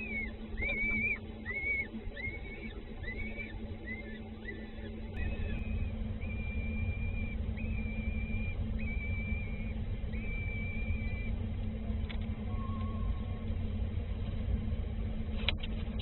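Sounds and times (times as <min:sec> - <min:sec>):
bird whistling: 0:00.0 - 0:11.3
low rumble with faint hum: 0:00.0 - 0:16.0.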